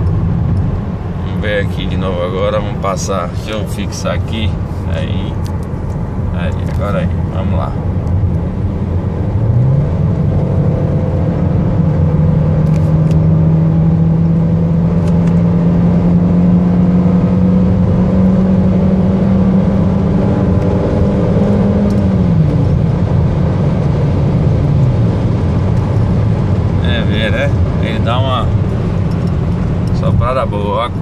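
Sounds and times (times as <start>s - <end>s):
car engine accelerating hard: 6.1s - 31.0s.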